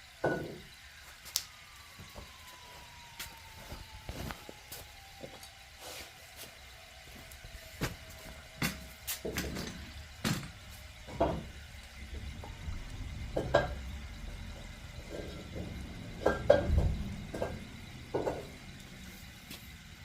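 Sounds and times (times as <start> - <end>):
low rumble: 9.9 - 20.0.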